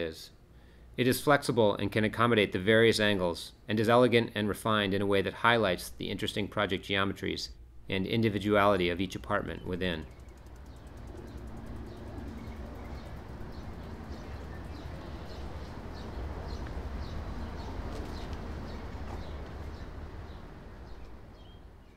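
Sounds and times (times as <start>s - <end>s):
low rumble and hiss: 0.0s - 21.9s
small bird chirping: 9.2s - 21.9s.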